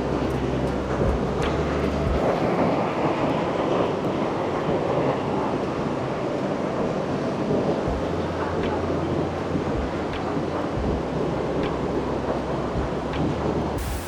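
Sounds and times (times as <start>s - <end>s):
wind rumbling on microphone: 0.0s - 14.0s
waterfall roaring: 13.8s - 14.0s.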